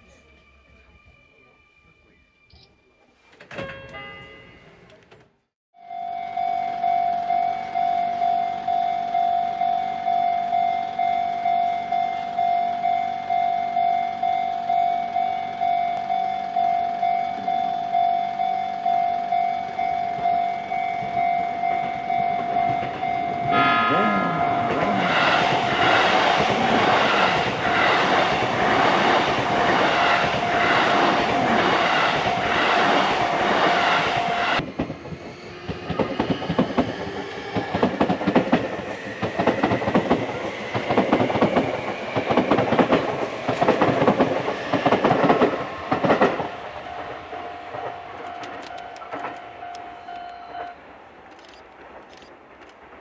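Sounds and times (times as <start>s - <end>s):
railway crossing bell ringing: 0.0s - 4.9s, 5.8s - 34.6s, 45.6s - 50.8s
electric train running past: 5.8s - 53.0s.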